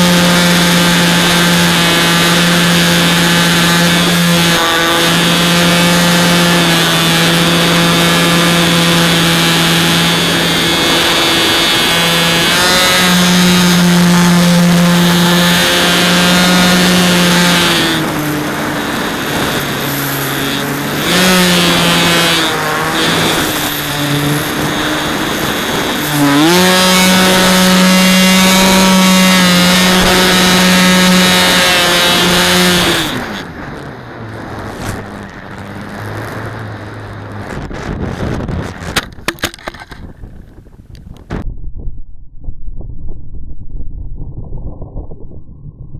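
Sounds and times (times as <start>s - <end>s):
electric motor whining: 0.0s - 40.0s
wind rushing over microphone: 0.0s - 45.9s
sharp clicks and knocks: 38.9s - 40.2s.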